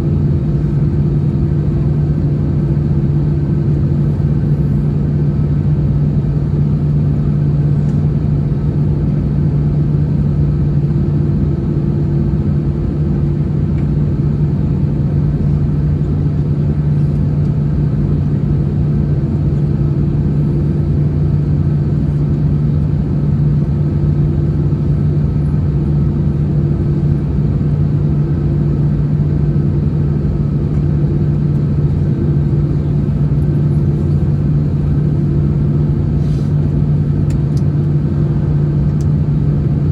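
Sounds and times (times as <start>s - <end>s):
airflow rumble: 0.0s - 39.9s
jet engines humming: 9.7s - 39.9s.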